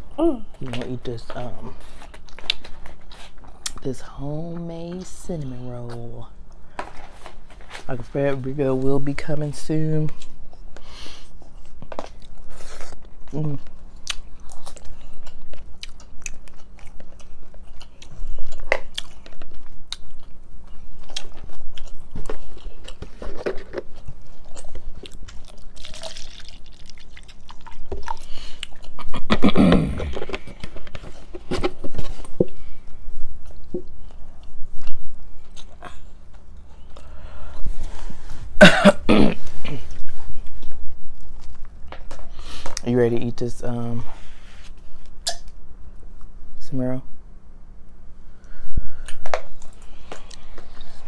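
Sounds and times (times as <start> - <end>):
chewing and eating sounds: 10.1 - 31.4, 32.0 - 37.6, 49.0 - 51.0.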